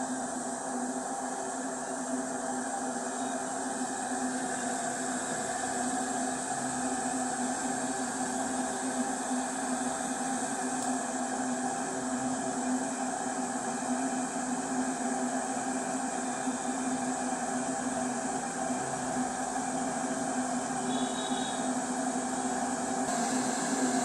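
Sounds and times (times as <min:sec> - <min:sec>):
electric kettle heating water: 0:00.0 - 0:24.0.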